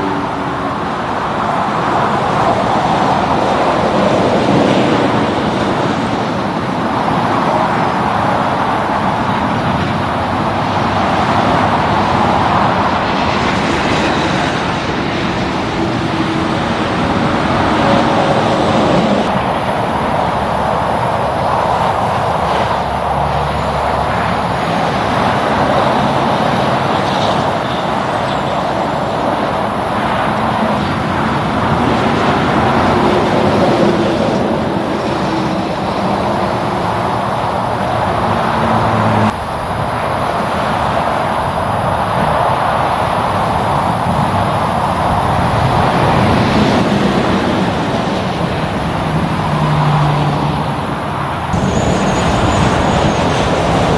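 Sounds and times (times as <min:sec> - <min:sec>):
highway traffic noise: 0:00.0 - 0:53.9.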